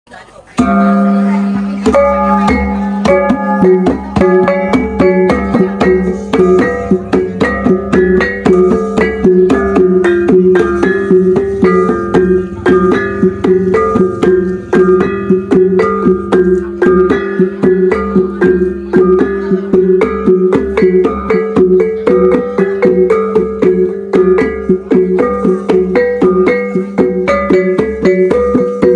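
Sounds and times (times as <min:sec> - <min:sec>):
rapid strikes on small gongs: 0:00.6 - 0:28.9.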